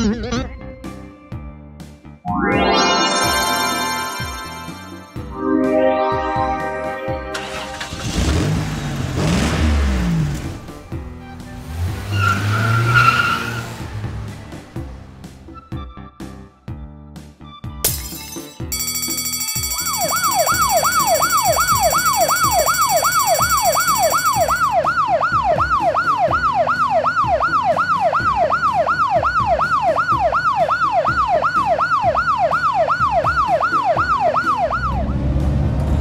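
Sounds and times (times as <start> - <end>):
steady high-pitched tone: 2.3 - 7.4
siren yelping: 18.9 - 35.1.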